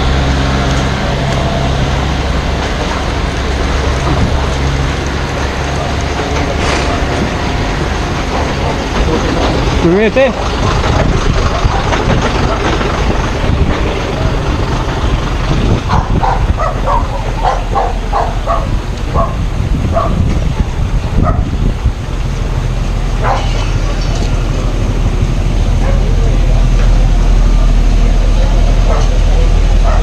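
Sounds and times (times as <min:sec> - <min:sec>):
engine running: 0:00.0 - 0:30.0
dog barking: 0:15.9 - 0:20.2, 0:21.2 - 0:21.5, 0:23.2 - 0:23.6, 0:25.8 - 0:26.2, 0:29.8 - 0:30.0.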